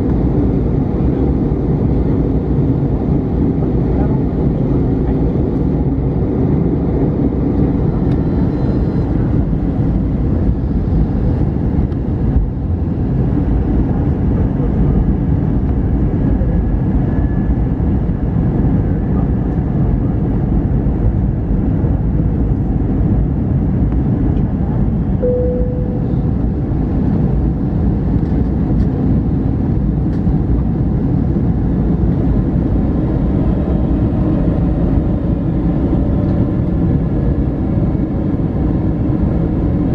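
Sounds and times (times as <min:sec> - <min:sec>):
airliner cabin noise: 0:00.0 - 0:39.9
single tone: 0:25.2 - 0:26.6.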